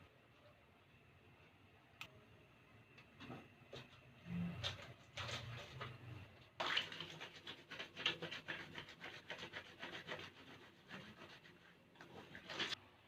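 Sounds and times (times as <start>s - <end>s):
scratching strokes on a surface: 6.6s - 12.8s.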